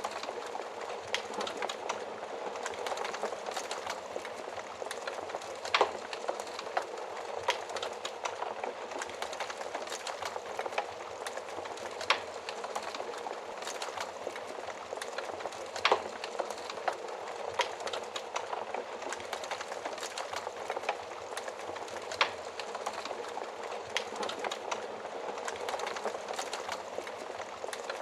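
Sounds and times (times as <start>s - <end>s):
fire crackling and popping: 0.0s - 28.0s.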